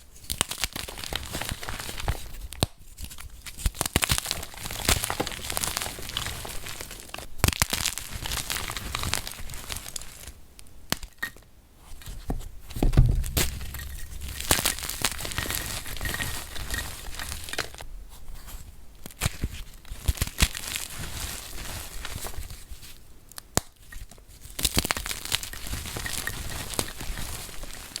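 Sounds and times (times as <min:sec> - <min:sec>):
heavy thump: 0:12.8 - 0:17.8.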